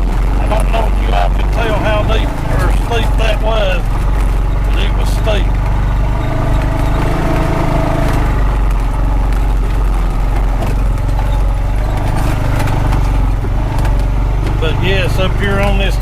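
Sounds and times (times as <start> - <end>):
knocks and rattles: 0.0 - 16.0
utility vehicle engine running: 0.0 - 16.0.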